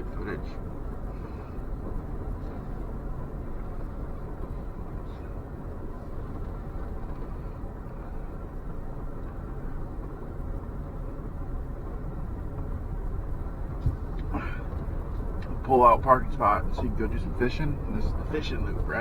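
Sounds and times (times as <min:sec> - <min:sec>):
road noise: 0:00.0 - 0:19.0
vehicle engine low rumble: 0:00.0 - 0:19.0.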